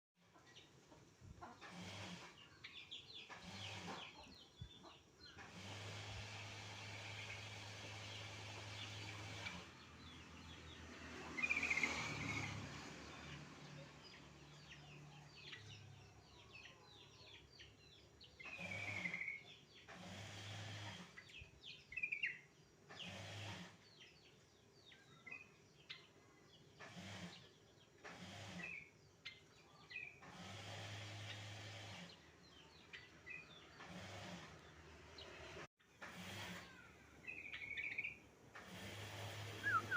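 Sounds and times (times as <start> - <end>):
wild birds chirping: 0.2 - 39.9.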